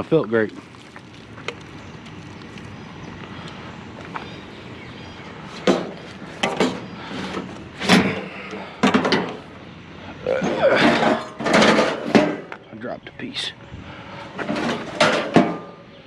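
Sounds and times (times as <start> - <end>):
scrap metal clattering: 5.6 - 9.5, 10.4 - 12.6, 14.3 - 15.8.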